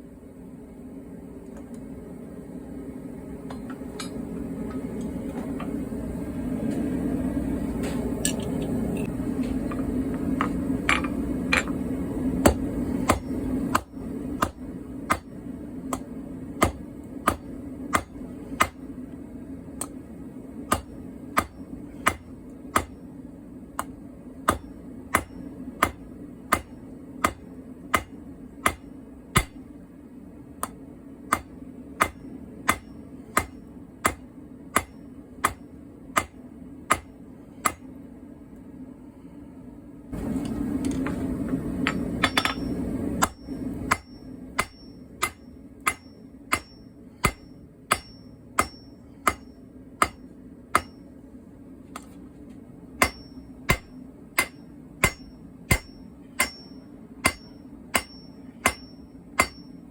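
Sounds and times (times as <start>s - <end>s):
hammer striking steel on anvil: 3.5s - 4.3s, 9.7s - 18.9s, 20.7s - 23.1s, 23.8s - 29.6s, 30.6s - 37.9s, 41.8s - 51.1s, 53.0s - 59.9s.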